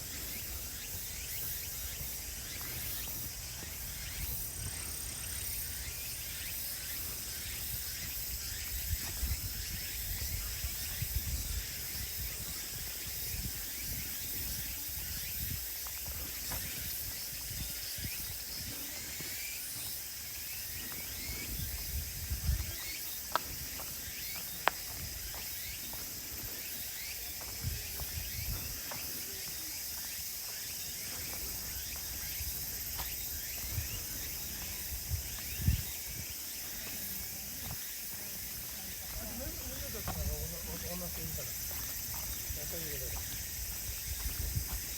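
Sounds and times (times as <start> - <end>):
footsteps on woodland path: 0.0 - 44.9.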